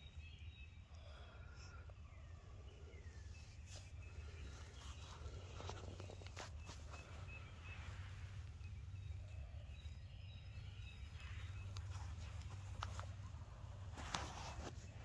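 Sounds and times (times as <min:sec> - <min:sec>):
steady low rumble: 0:02.0 - 0:14.0.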